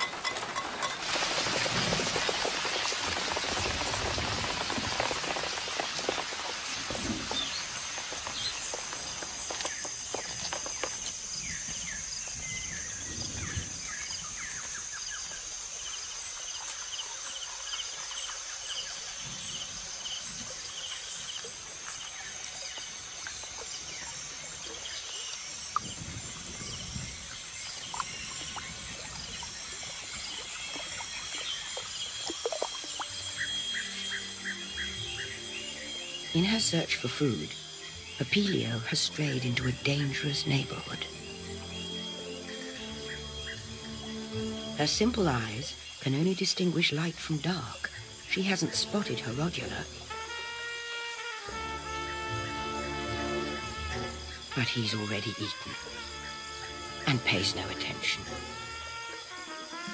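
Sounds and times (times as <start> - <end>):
heavy rain falling: 0.0 - 11.3
steady high insect buzzing: 5.8 - 36.6, 47.4 - 59.9.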